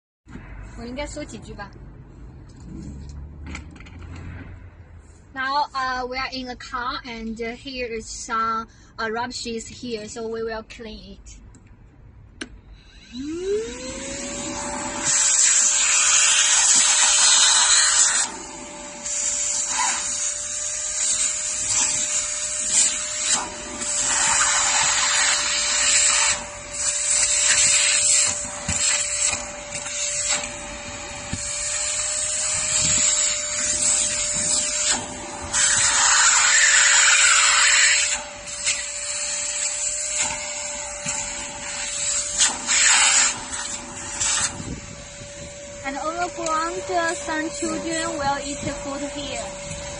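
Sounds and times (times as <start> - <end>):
handheld vacuum motor whine: 12.8 - 49.9.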